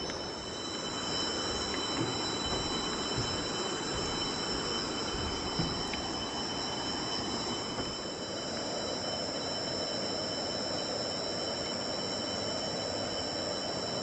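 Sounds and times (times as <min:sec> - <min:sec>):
constant rushing background: 0:00.0 - 0:08.2
insects chorus: 0:00.0 - 0:14.0.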